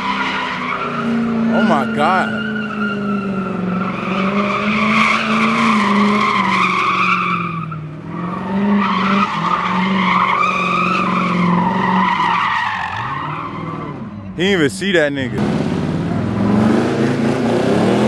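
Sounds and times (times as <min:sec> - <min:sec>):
tires spinning and squealing: 0:00.0 - 0:14.4
car engine at high revs: 0:00.0 - 0:14.6, 0:15.2 - 0:18.0.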